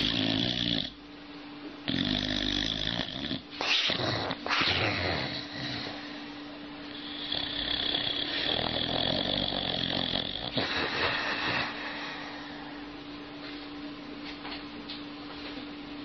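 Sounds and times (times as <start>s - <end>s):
dog snoring: 0.0s - 1.0s, 1.8s - 12.8s.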